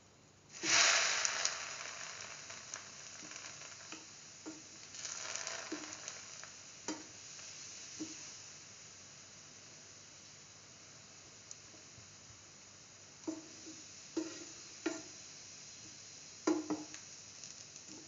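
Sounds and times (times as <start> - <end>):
bread frying in hot oil: 0.5 - 18.0
oil pops and crackles: 16.5 - 18.0.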